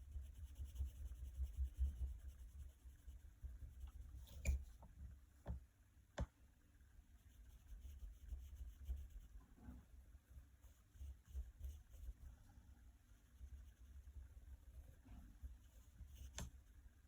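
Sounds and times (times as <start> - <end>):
colouring tool strokes on paper: 0.0 - 4.1.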